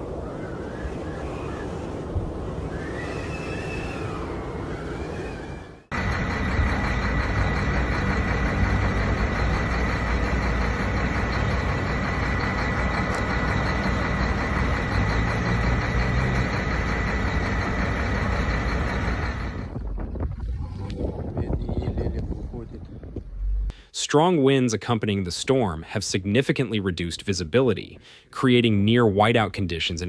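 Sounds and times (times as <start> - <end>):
engine running steadily: 5.9 - 23.8.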